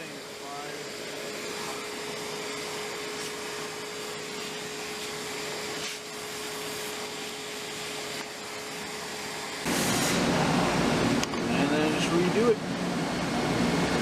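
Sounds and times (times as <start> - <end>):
constant machine hum: 0.0 - 14.0
machine hiss: 1.4 - 10.5
loud rough cutting sound: 9.6 - 10.4.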